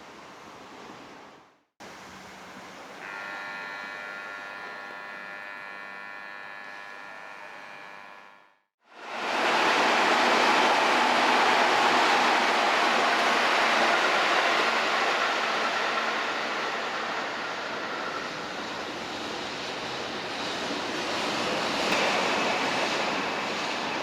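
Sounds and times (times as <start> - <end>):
freight train passing: 8.9 - 24.0.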